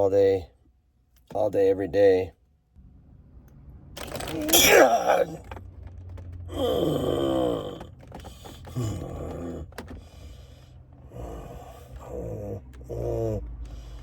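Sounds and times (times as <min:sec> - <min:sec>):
man groaning in pain: 0:04.4 - 0:05.4, 0:06.5 - 0:07.8
strained breaths: 0:06.4 - 0:14.0.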